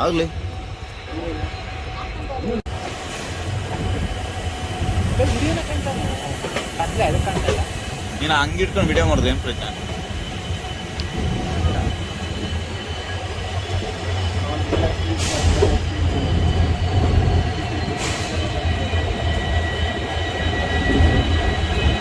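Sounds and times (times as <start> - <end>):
train low rumble: 0.0 - 22.0
high-pitched wheel squeal: 7.9 - 22.0.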